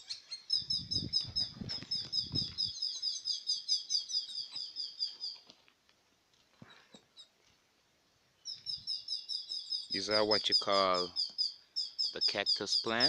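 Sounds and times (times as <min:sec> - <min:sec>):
bird chirping rapidly: 0:00.0 - 0:05.4, 0:08.4 - 0:13.0.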